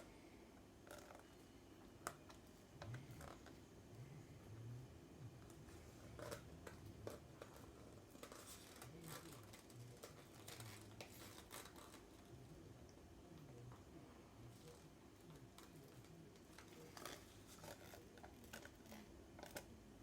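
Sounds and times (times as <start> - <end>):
small objects rustling: 5.4 - 12.4.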